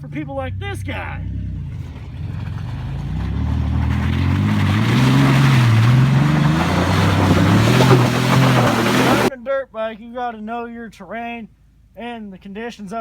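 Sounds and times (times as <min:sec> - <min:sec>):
dirt bike engine revving: 0:00.5 - 0:09.3.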